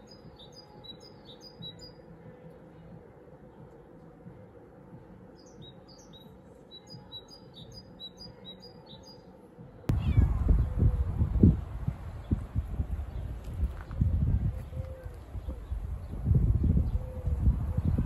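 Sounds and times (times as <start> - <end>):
wind buffeting microphone: 9.9 - 18.0.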